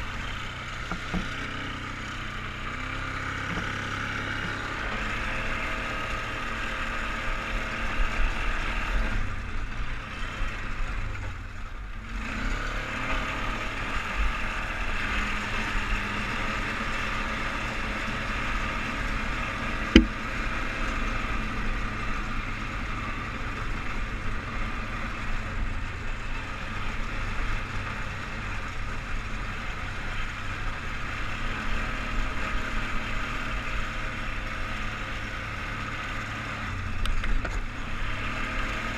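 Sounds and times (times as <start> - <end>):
atv engine running: 0.0 - 38.9
sharp knock: 19.9 - 20.2.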